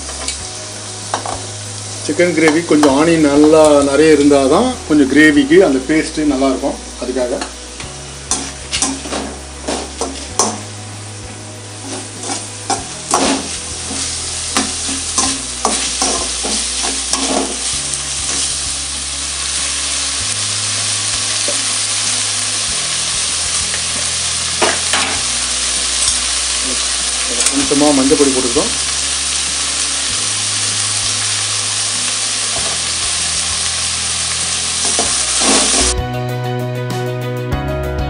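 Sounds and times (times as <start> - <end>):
onions sizzling in hot oil: 0.0 - 36.0
metal ladle scraping and clinking pan: 8.3 - 10.6, 11.8 - 17.7.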